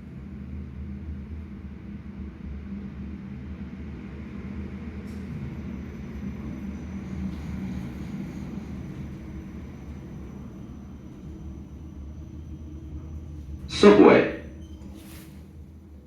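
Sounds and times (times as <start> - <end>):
lift machinery hum and rumble: 4.9 - 16.0.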